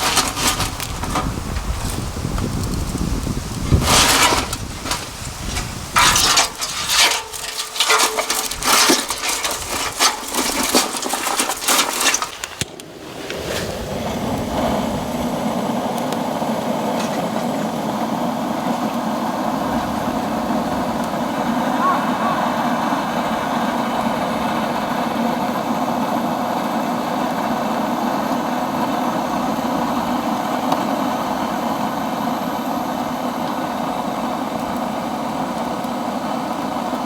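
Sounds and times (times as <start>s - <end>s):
bamboo cracking and snapping: 11.1s - 12.9s.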